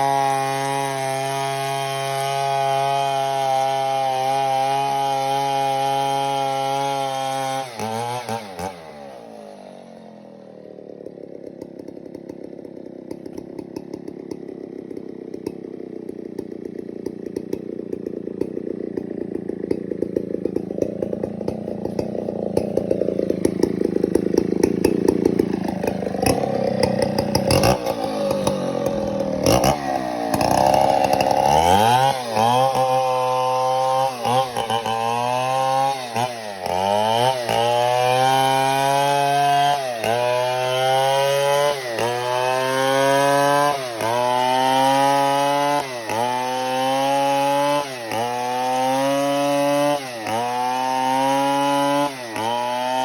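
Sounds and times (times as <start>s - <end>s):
chainsaw running: 0.0s - 53.0s
rattling sound: 13.1s - 32.9s.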